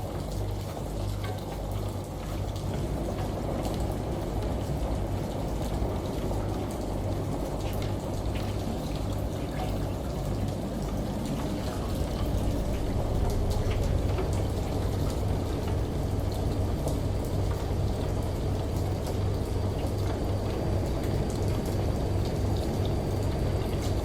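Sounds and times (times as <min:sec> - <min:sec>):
running water: 0:00.0 - 0:24.0
light raindrop ticks: 0:00.1 - 0:24.0
steady low hum: 0:02.1 - 0:24.0.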